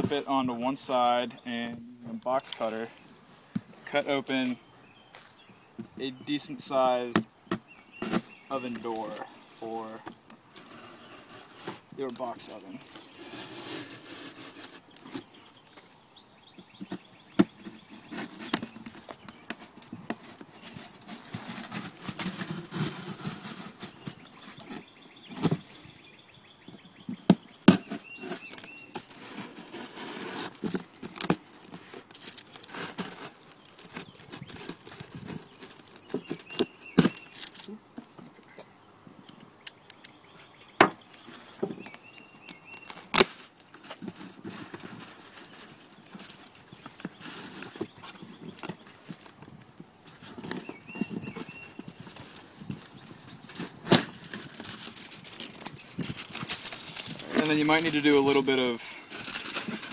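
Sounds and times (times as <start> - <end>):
box cutter cutting cardboard: 27.2 - 31.4.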